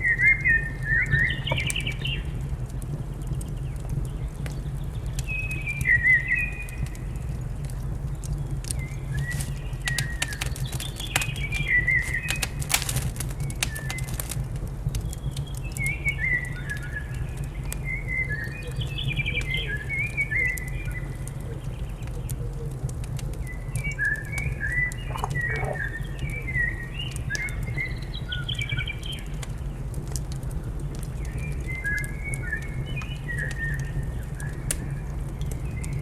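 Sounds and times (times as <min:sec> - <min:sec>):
wood fire crackling: 0:00.0 - 0:36.0
small birds chirping: 0:00.4 - 0:02.4, 0:08.0 - 0:14.1, 0:23.4 - 0:29.6
steady low rumble: 0:24.3 - 0:27.3.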